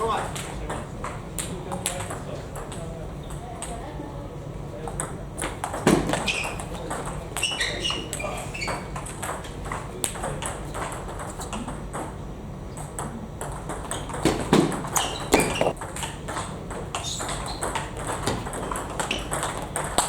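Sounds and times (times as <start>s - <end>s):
table tennis balls clicking: 4.8s - 20.0s.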